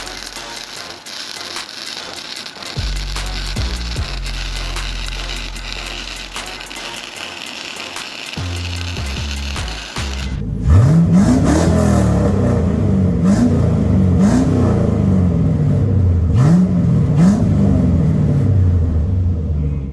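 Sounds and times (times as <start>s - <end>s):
car engine idling and revving: 2.8s - 6.9s, 8.4s - 19.9s.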